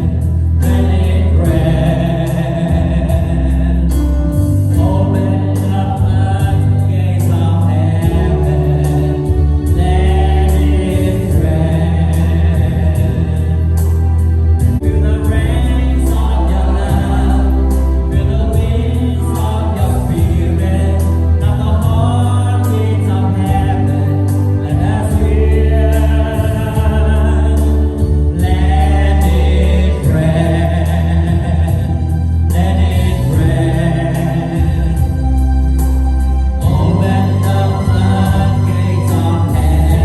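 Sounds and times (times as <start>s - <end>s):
band with bass and drums: 0.0s - 40.0s
gospel choir singing: 0.0s - 40.0s.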